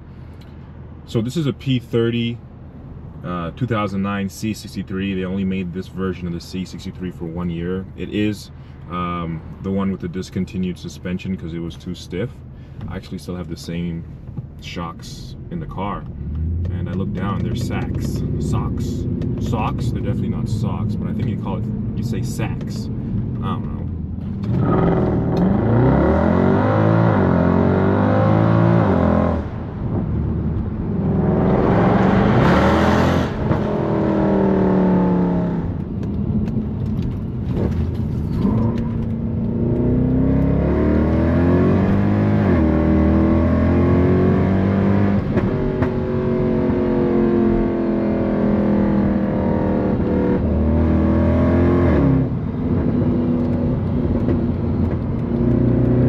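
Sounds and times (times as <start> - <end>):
car exhaust accelerating through gears: 15.5 - 56.0.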